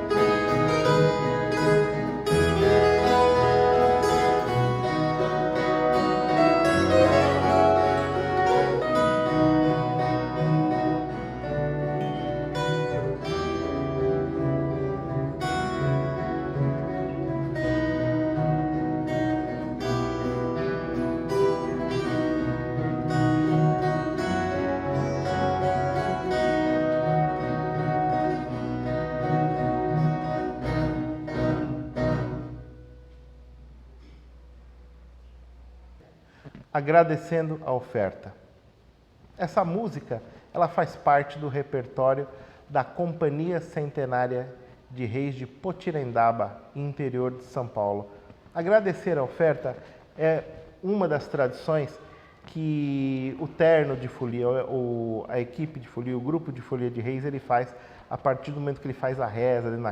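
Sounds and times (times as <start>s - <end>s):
folk guitar ensemble playing: 0.0s - 34.6s
low bass notes: 0.0s - 36.1s.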